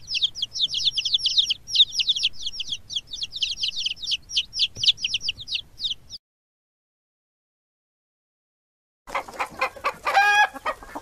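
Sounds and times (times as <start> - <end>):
baby chicks peeping: 0.0 - 6.2, 9.1 - 11.0.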